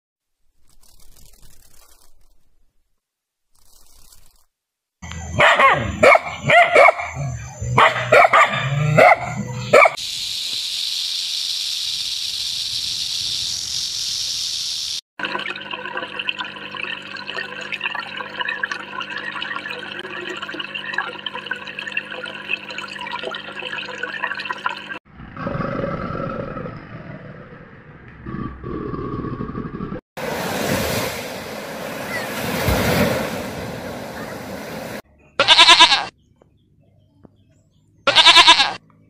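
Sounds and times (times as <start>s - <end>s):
dog barking: 5.3s - 10.0s
steady hiss: 10.0s - 15.0s.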